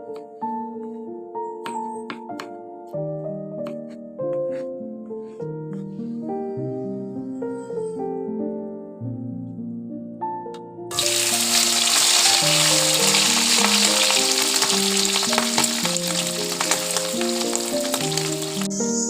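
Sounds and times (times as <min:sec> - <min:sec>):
food sizzling in hot oil: 0:10.9 - 0:19.0.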